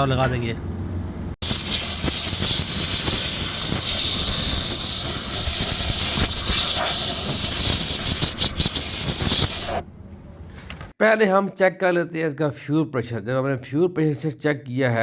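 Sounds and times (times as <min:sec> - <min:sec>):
pressurised gas jet hissing: 0:01.4 - 0:09.8.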